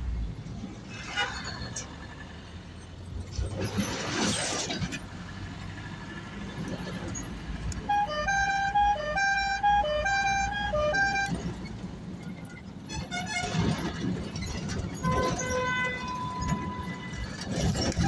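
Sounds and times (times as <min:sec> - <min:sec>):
musical vehicle horn tune: 0:07.8 - 0:11.5, 0:12.9 - 0:13.8, 0:15.0 - 0:17.3.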